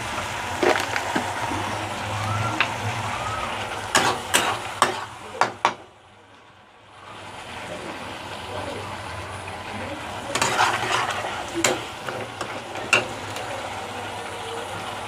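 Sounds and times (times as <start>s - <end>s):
sauce sizzling in a pan: 0.0s - 5.8s, 7.0s - 15.0s.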